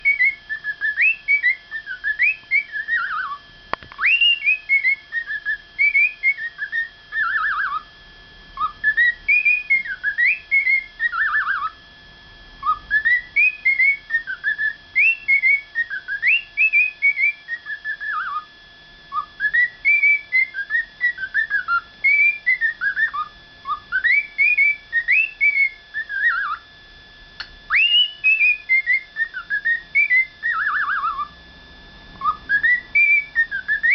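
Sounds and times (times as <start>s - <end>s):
cockatiel whistling: 0.0s - 7.9s, 8.6s - 11.8s, 12.6s - 18.5s, 19.1s - 26.7s, 27.4s - 31.4s, 32.1s - 33.9s.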